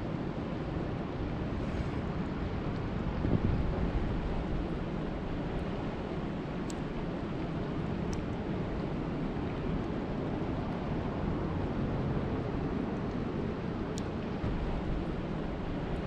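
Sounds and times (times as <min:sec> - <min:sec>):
steady rain: 0:00.0 - 0:16.0
sharp drip ticks: 0:06.6 - 0:06.9.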